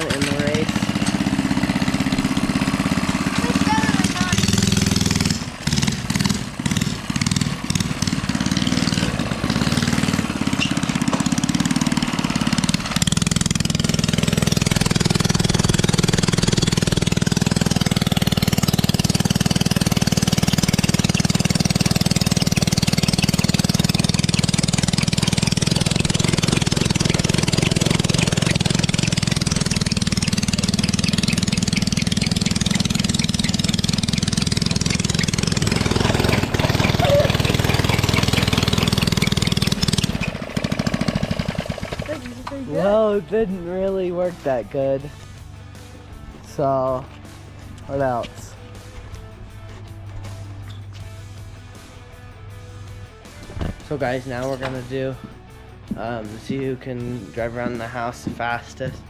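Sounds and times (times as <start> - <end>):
mini bike engine revving: 0.0 - 43.8.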